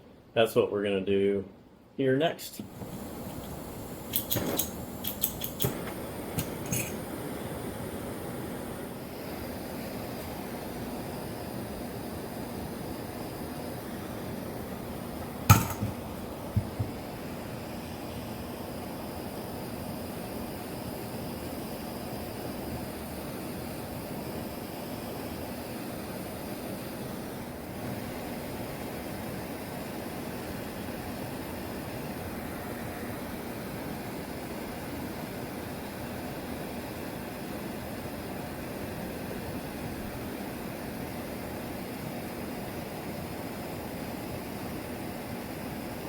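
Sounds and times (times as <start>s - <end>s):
torch flame hissing: 2.4s - 46.0s
clicks and knocks of torch: 2.8s - 7.0s.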